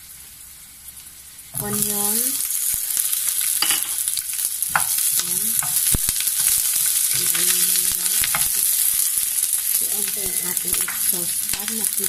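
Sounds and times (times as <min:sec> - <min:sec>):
onions sizzling in hot oil: 0:00.0 - 0:12.0
spatula stirring in pan: 0:01.6 - 0:12.0
spatula knocking against pan: 0:04.7 - 0:05.0.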